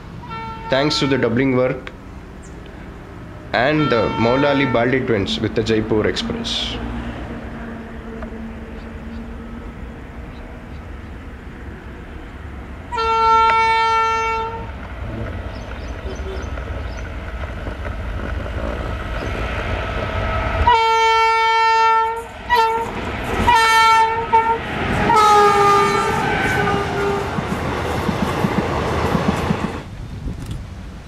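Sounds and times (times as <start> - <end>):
low rumble of running train: 0.0 - 31.0
diesel locomotive horn blasts: 0.2 - 1.4, 3.6 - 9.8, 12.9 - 14.8, 20.6 - 27.5.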